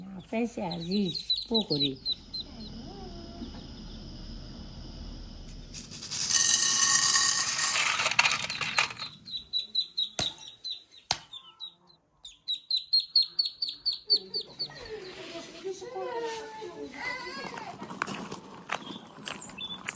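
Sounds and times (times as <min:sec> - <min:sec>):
small bird chirping: 0:00.0 - 0:05.1, 0:08.4 - 0:15.4, 0:18.8 - 0:19.9
loud rushing hiss: 0:02.2 - 0:07.4.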